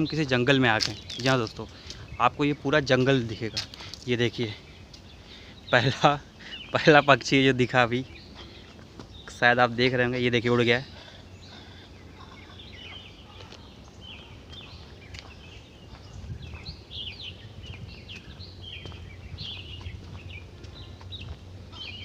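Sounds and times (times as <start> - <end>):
birds chirping and calling: 0.0 - 22.0
low background rumble: 10.3 - 22.0.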